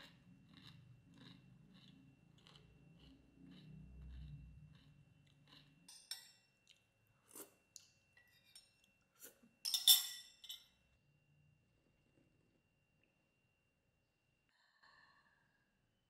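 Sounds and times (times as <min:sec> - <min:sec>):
crunching and chewing: 0:00.0 - 0:08.0.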